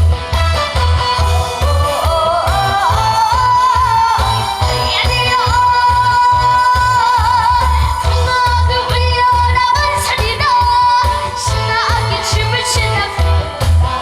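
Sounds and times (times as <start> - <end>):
backing track with pulsing bass beat: 0.0 - 14.0
high voice singing with vibrato: 0.0 - 14.0.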